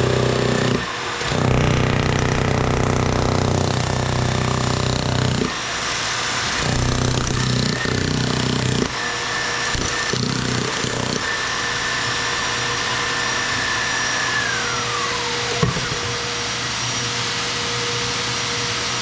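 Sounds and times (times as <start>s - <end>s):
jackhammer breaking concrete: 0.0s - 5.6s, 6.5s - 9.0s, 9.6s - 11.5s
motor whine: 0.0s - 5.6s, 9.7s - 16.5s.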